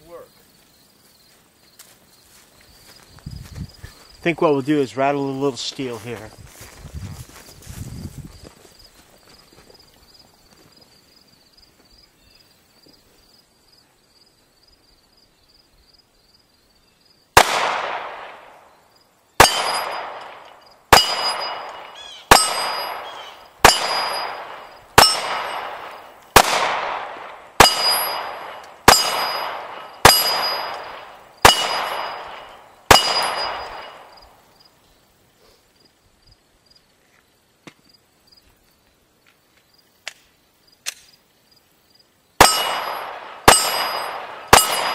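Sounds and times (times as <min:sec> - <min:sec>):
pistol shots: 0:17.4 - 0:18.6, 0:19.4 - 0:34.2, 0:42.4 - 0:44.9
steel plate ringing clang: 0:19.4 - 0:25.8, 0:27.6 - 0:34.2, 0:42.4 - 0:44.9.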